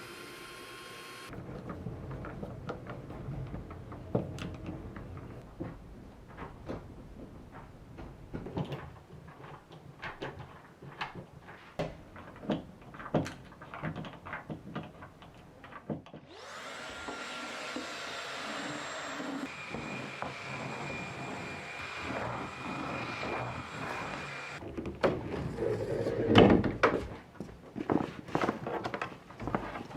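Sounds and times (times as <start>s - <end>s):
vacuum cleaner running: 0.0s - 1.3s, 16.3s - 24.6s.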